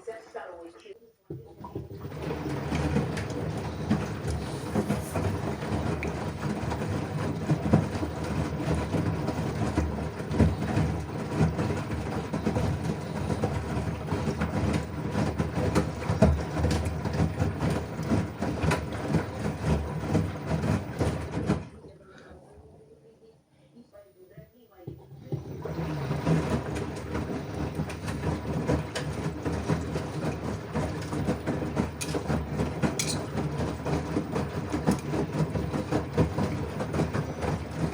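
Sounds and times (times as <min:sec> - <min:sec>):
washing machine drum rumble: 0:01.3 - 0:21.8, 0:24.9 - 0:37.9
knocks and clatter: 0:26.1 - 0:37.1.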